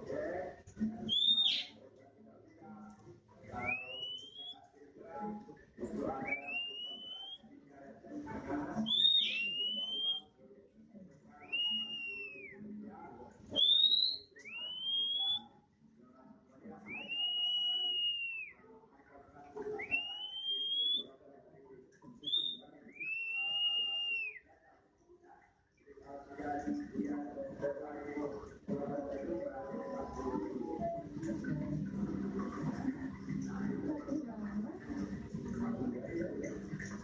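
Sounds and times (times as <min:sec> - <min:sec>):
bird whistling song: 0:01.0 - 0:01.8, 0:03.6 - 0:04.6, 0:06.2 - 0:07.4, 0:08.8 - 0:10.2, 0:11.4 - 0:12.5, 0:13.6 - 0:15.5, 0:16.9 - 0:18.5, 0:19.8 - 0:21.0, 0:22.2 - 0:24.4.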